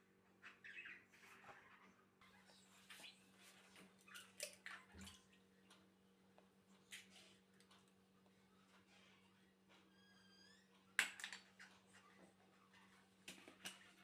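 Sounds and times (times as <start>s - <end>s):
faint clicks and light knocks: 3.7s - 9.9s.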